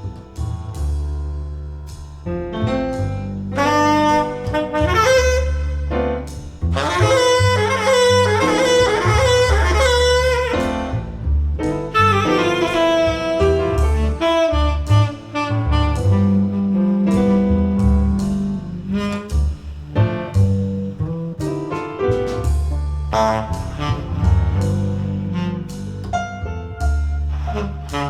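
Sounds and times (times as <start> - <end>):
low bass notes: 0.0 - 28.0
tenor saxophone melody: 3.6 - 11.2, 11.9 - 19.6, 23.1 - 26.1, 27.3 - 28.0.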